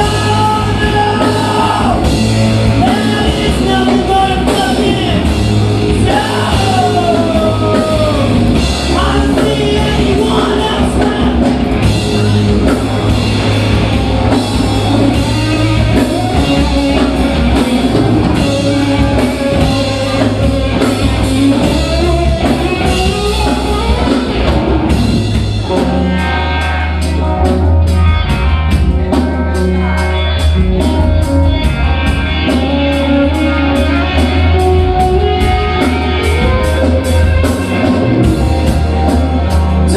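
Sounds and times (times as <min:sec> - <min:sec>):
person singing: 0:00.0 - 0:13.1, 0:13.9 - 0:24.3
live rock band playing: 0:00.0 - 0:39.9.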